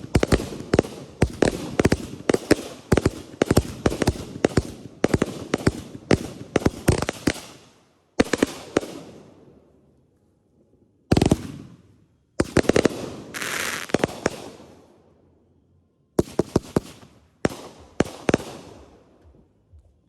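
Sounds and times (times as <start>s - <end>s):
firework bangs: 12.4s - 14.6s
firework crackling hiss: 13.3s - 14.4s.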